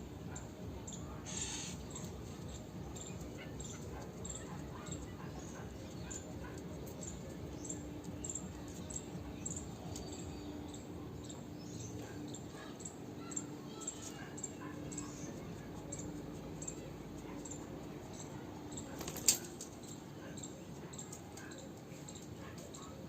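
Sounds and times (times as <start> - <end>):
birds chirping in a flock: 0.1 - 23.0.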